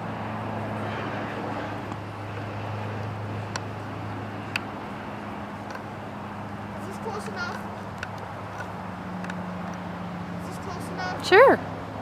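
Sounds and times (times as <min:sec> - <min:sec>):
faint clicks: 0:04.4 - 0:09.9.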